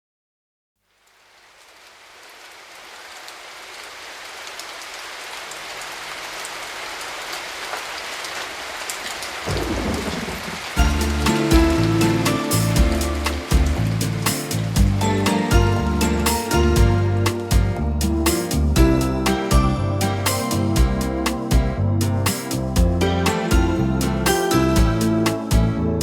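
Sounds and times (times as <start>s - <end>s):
steady rain: 0.8s - 26.0s
music: 10.8s - 26.0s.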